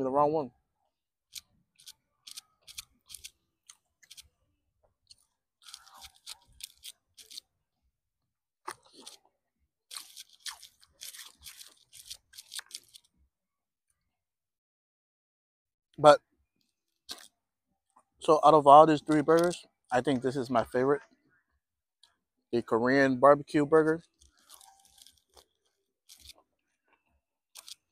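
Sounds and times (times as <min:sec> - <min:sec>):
person chewing crunchy food: 0:01.3 - 0:04.4, 0:05.0 - 0:07.5, 0:08.6 - 0:13.2, 0:16.9 - 0:17.4, 0:24.0 - 0:27.9.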